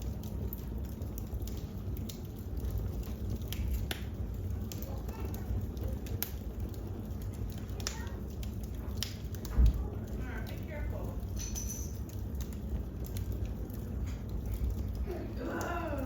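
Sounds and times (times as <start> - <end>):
wood fire crackling: 0.0 - 16.0
faint voices murmuring: 4.3 - 11.3, 13.7 - 16.0.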